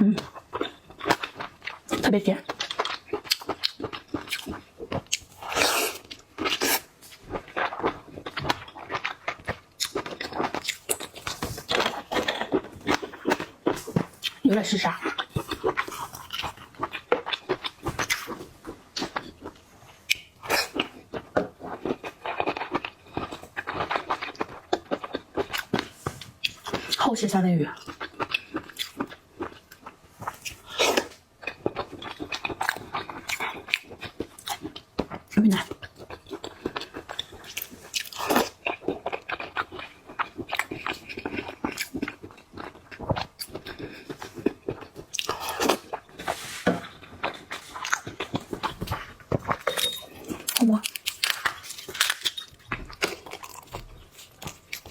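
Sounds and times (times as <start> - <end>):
person chewing seafood: 0.0 - 27.1, 27.8 - 54.9.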